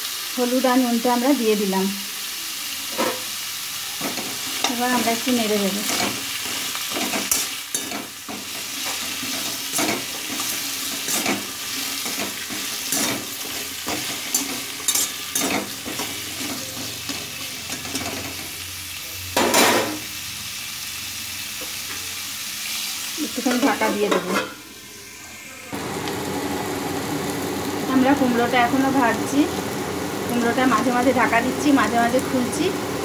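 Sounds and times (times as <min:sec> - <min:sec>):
food sizzling in oil: 0:00.0 - 0:33.0
metal spatula scraping pan: 0:05.8 - 0:18.3, 0:23.5 - 0:24.6.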